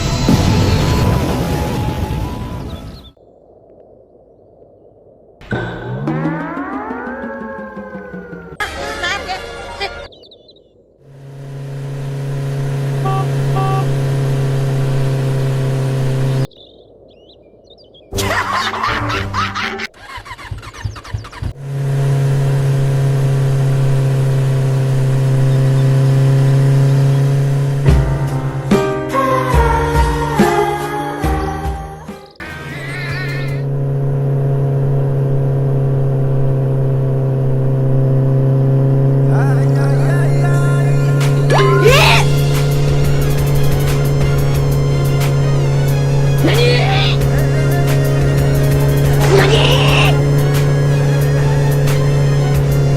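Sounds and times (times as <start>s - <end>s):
cartoon motorcycle engine: 5.5s - 9.2s, 11.1s - 16.5s, 18.2s - 28.7s, 32.4s - 52.9s
short tones: 12.9s - 14.0s.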